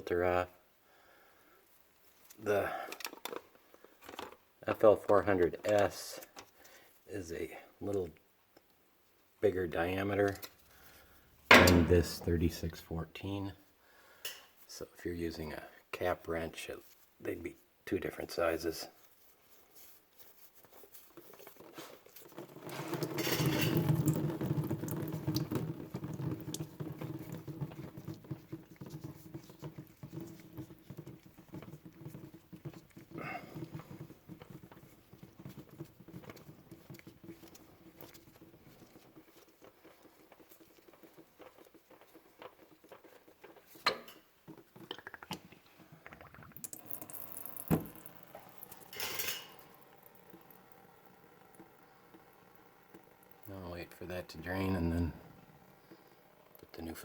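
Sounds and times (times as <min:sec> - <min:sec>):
engine oil pouring into drain pan: 0:22.1 - 0:42.8, 0:46.1 - 0:57.0.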